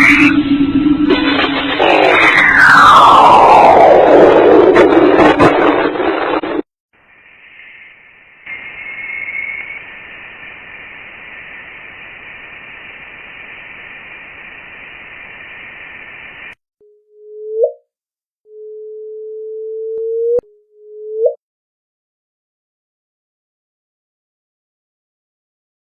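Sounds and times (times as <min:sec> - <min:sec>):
radio static hiss: 0:07.0 - 0:16.6.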